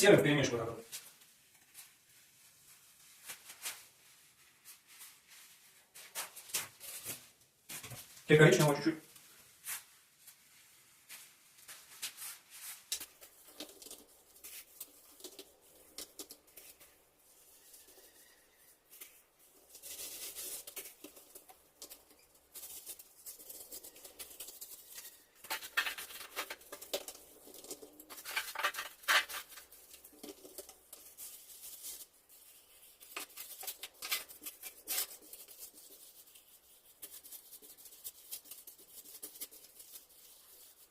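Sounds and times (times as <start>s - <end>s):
wet mortar scraping and patting: 10.4s - 40.9s.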